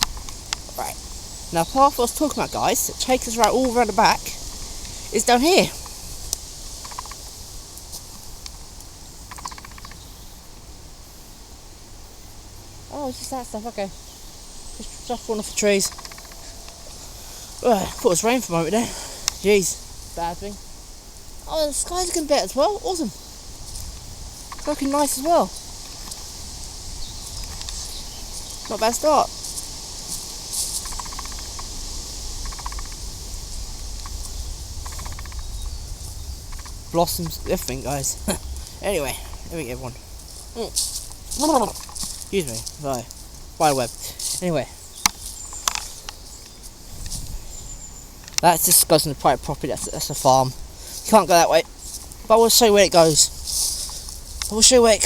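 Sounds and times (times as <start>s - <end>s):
bits ticking onto leaves: 0.0s - 11.0s, 12.3s - 55.0s
wind rumble on microphone: 0.0s - 12.1s, 13.2s - 48.4s
short rattling calls: 0.0s - 55.0s
steady outdoor hiss: 0.0s - 55.0s
short rustle: 14.2s - 32.2s, 35.6s - 55.0s.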